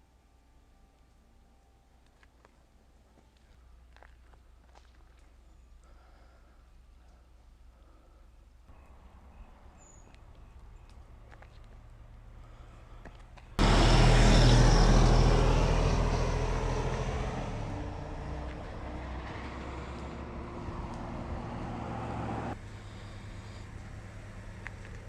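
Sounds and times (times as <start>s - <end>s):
vehicle passing by: 13.6s - 25.0s.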